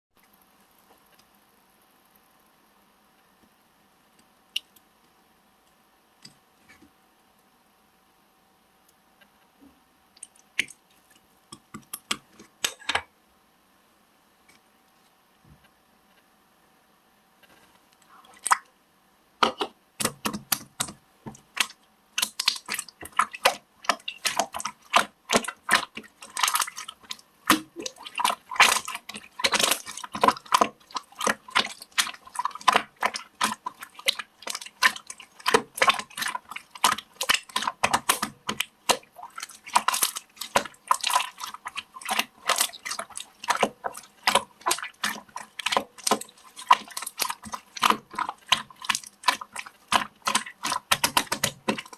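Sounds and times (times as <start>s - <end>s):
hands squishing toy slime: 19.4s - 51.9s.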